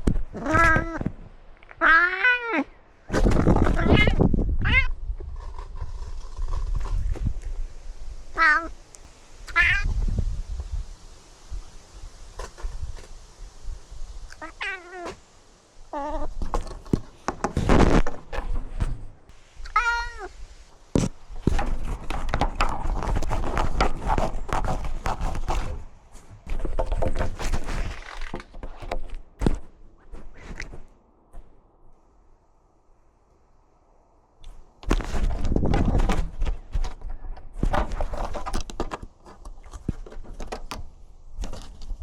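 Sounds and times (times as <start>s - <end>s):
scratching and rustling: 0.0s - 2.1s, 3.0s - 32.0s, 34.4s - 42.0s
cat meowing: 0.4s - 1.0s, 1.8s - 2.8s, 3.7s - 5.0s, 8.4s - 8.8s, 9.5s - 9.9s, 14.3s - 15.2s, 15.9s - 16.4s, 19.6s - 20.4s.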